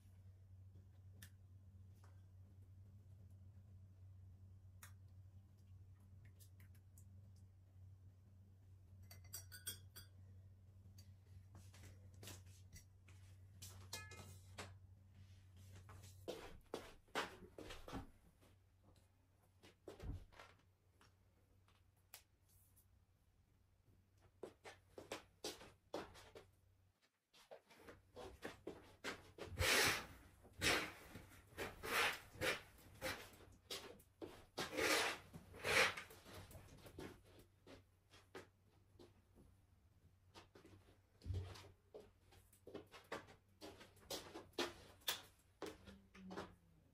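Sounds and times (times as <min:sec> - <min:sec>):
low steady hum: 0:00.0 - 0:16.3
dishes clinking: 0:09.0 - 0:10.2, 0:13.9 - 0:14.5.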